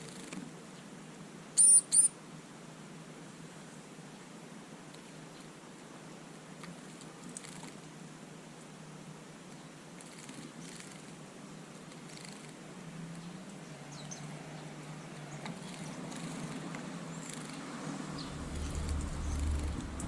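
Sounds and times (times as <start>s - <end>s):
high bird chirps: 1.6s - 2.1s
low steady rumble: 18.0s - 20.0s.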